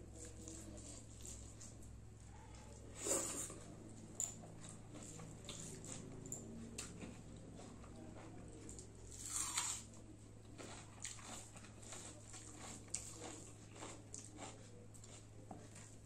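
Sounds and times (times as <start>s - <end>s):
soft chewing: 0.0s - 16.0s
crunchy bite: 9.1s - 9.9s.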